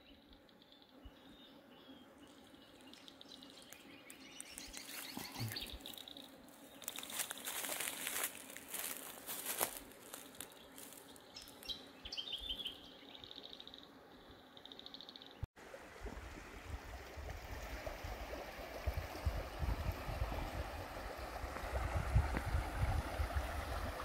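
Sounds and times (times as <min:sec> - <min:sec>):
small birds chirping: 0:00.0 - 0:15.5
dry crackling and rustling: 0:03.5 - 0:11.7.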